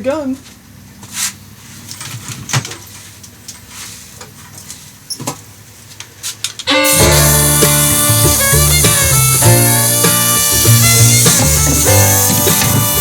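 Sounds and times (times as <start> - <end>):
blues music with harmonica and guitar: 6.7 - 13.0.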